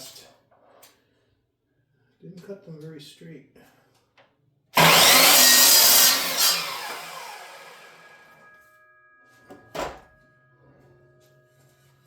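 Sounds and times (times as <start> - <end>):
power saw cutting wood: 4.8 - 8.4
saw blade winding down whine: 4.8 - 8.4.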